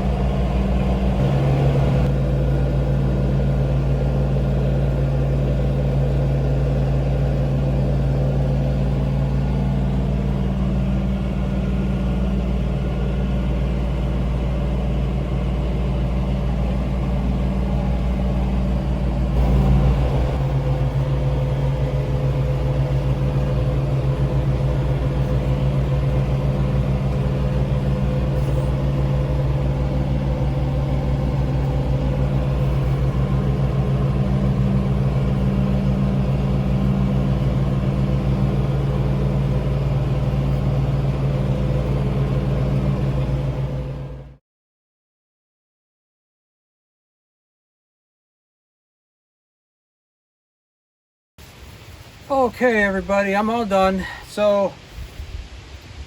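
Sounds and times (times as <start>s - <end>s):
tractor engine droning: 0.0s - 44.4s.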